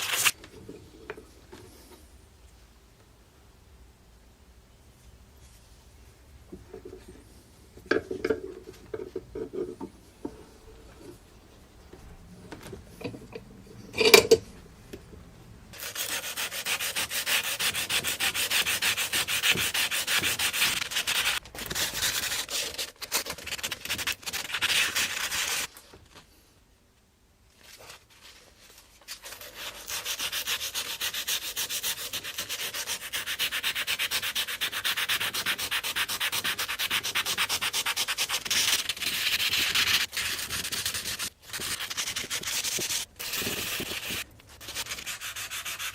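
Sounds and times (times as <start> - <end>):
hand sanding strokes: 15.8 - 22.6, 29.2 - 45.9.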